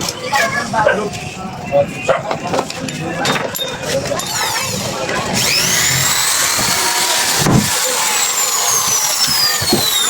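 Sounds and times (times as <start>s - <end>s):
power tool motor whining: 4.2s - 10.0s.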